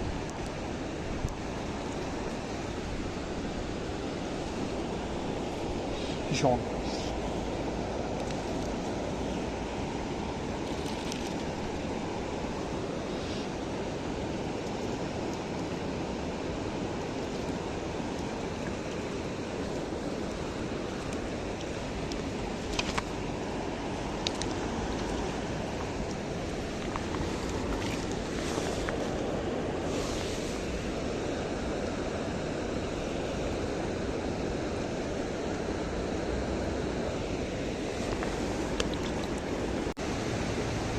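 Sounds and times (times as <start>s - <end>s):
river rushing over rocks: 11.3s - 40.9s.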